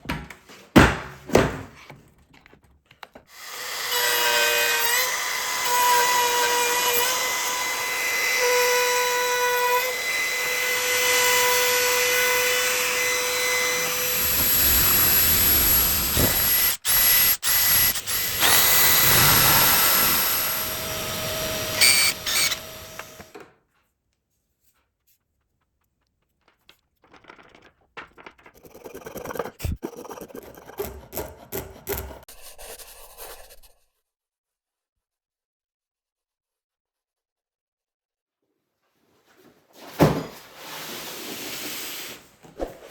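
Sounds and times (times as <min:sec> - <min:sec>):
power tool cutting wood: 0:03.4 - 0:23.4
scraping on wood: 0:28.4 - 0:33.8.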